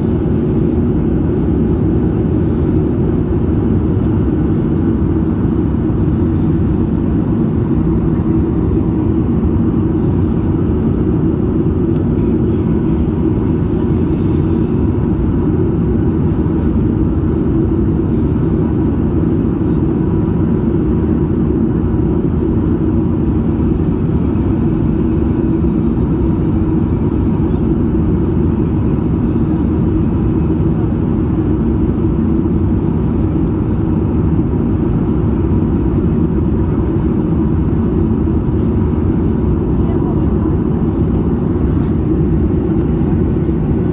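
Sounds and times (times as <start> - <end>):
jet engine roar in cabin: 0.0 - 43.9.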